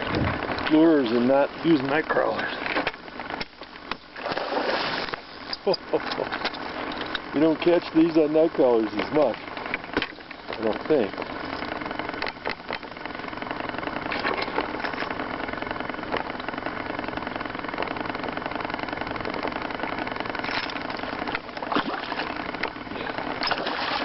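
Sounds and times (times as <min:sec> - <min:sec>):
boat motor idling: 0:00.0 - 0:24.0
knocks or splashes: 0:23.4 - 0:24.0.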